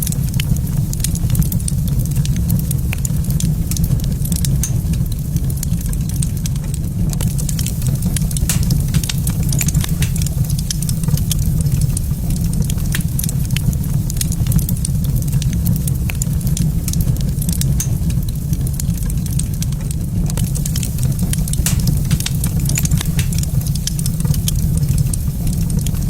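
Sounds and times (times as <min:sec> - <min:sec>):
fireplace fire crackling: 0:00.0 - 0:26.0.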